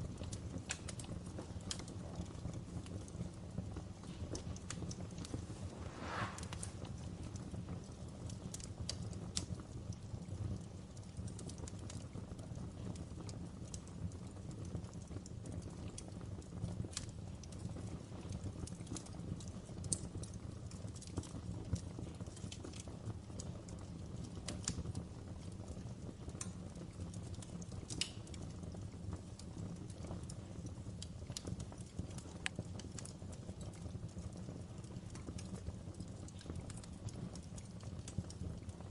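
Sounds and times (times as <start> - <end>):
fire popping and snapping: 0.0 - 38.9
wood fire crackling: 0.0 - 38.9
low rumble: 5.2 - 7.2.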